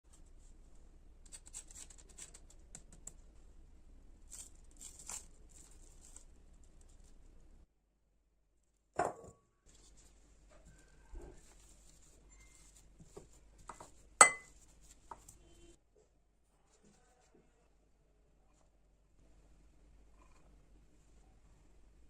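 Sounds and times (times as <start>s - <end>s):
utensil knocking with ring: 14.2s - 14.5s.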